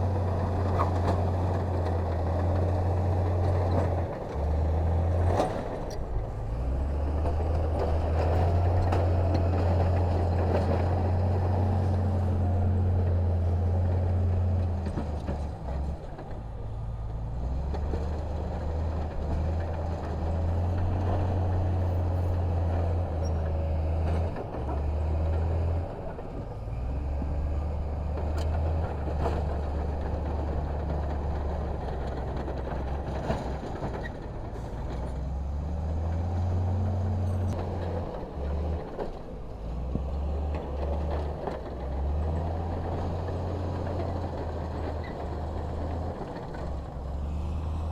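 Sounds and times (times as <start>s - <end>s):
heavy diesel engine droning: 0.0s - 47.9s.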